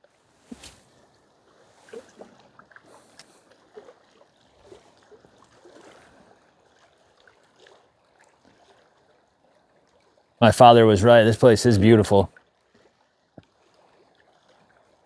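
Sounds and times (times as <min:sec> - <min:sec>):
small waves lapping on rocks: 0:00.1 - 0:10.4.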